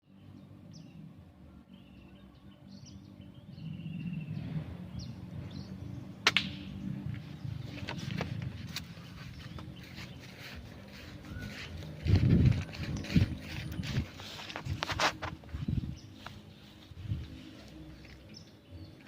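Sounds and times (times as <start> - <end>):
sparrows chirping: 0.0 - 19.0
low rumble: 3.0 - 19.0.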